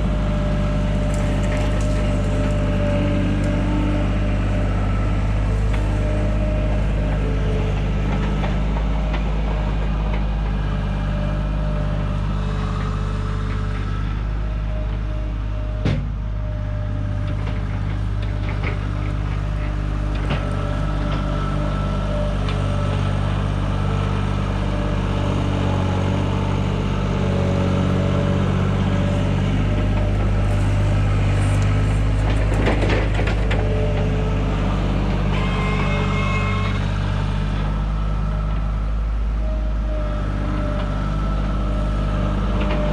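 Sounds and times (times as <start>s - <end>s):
heavy machinery engine running: 0.0s - 42.9s.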